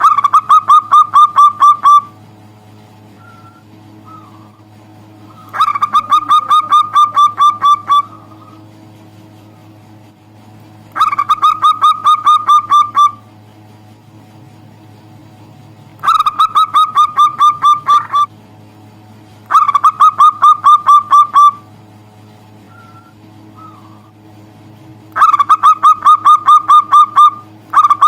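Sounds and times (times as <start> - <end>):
dove cooing: 0.0 - 2.2, 3.2 - 8.7, 11.0 - 13.3, 16.0 - 18.3, 19.5 - 21.7, 22.6 - 24.2, 25.2 - 28.0
low steady hum: 0.0 - 28.0.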